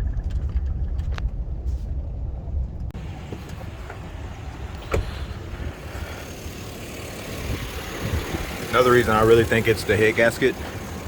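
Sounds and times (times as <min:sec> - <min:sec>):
pickup engine idling: 0:02.9 - 0:11.0.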